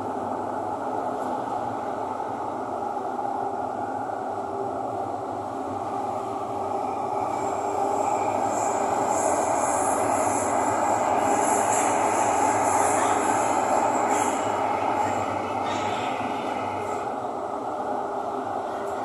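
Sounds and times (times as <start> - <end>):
train rumble inside carriage: 0.0 - 19.0
high-pitched train squeal: 6.8 - 17.0.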